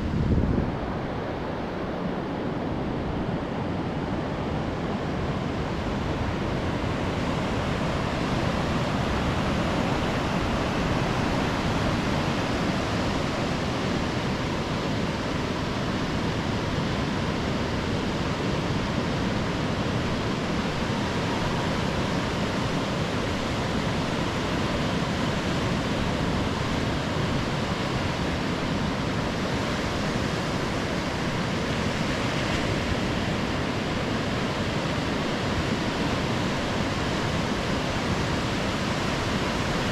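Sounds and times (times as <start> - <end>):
ocean surf on a beach: 0.0 - 39.9.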